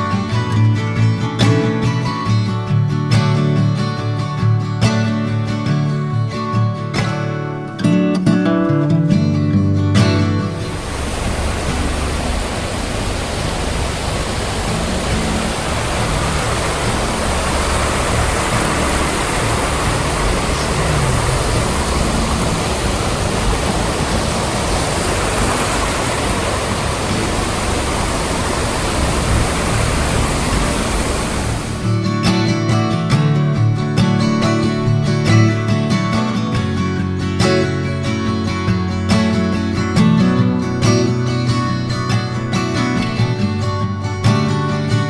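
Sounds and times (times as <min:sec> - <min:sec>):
rushing mountain stream: 0:10.4 - 0:32.0.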